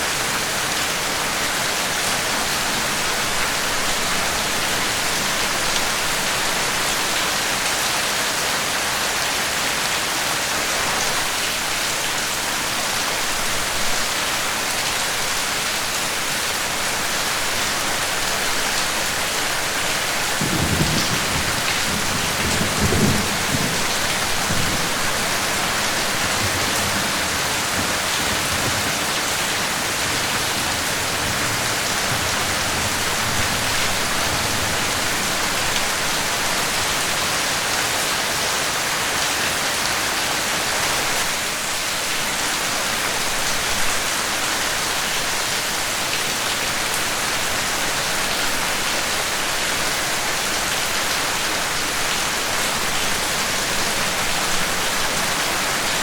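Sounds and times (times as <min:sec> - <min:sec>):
heavy rain splashing: 0:00.0 - 0:56.0
low rumble of thunder: 0:20.2 - 0:35.8.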